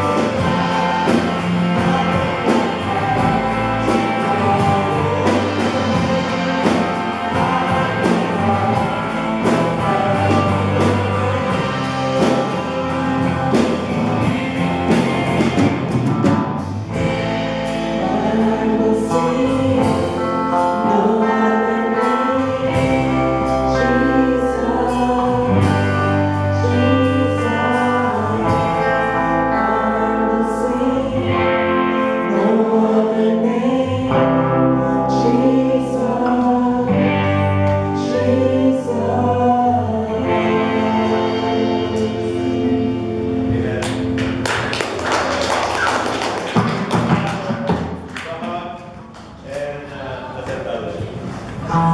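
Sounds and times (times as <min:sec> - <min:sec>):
steady drum beat: 0:00.0 - 0:20.7, 0:41.0 - 0:48.4
voices singing: 0:00.0 - 0:44.4
sustained bass notes: 0:00.0 - 0:48.1, 0:51.0 - 0:51.9.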